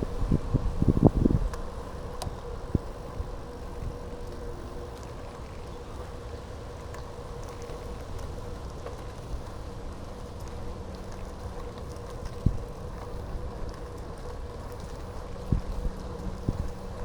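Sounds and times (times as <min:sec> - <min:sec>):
wind noise on microphone: 0:00.0 - 0:04.9, 0:15.2 - 0:17.0
bicycle rumble: 0:00.0 - 0:17.0
faint steady hum: 0:00.0 - 0:17.0.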